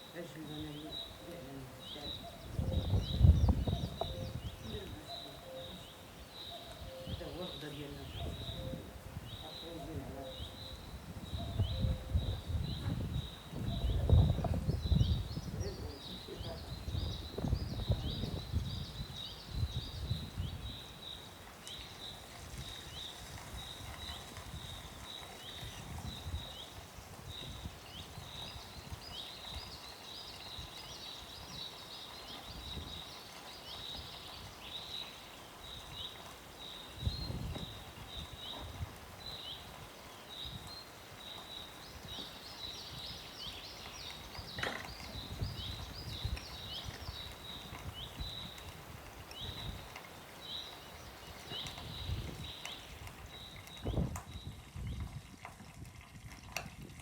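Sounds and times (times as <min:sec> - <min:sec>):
birds chirping: 0:00.0 - 0:55.2.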